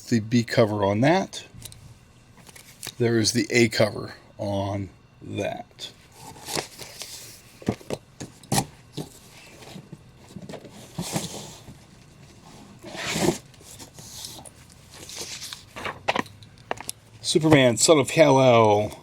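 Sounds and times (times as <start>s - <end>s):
paper rustling and sliding: 6.1s - 7.6s, 9.0s - 16.2s.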